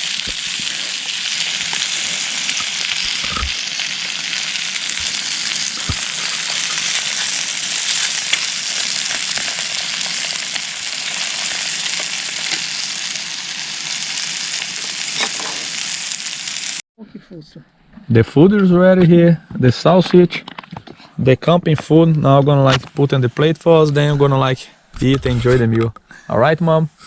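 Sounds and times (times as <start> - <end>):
food sizzling in a frying pan: 0.0 - 16.8
hot fat crackling and popping: 0.0 - 16.8.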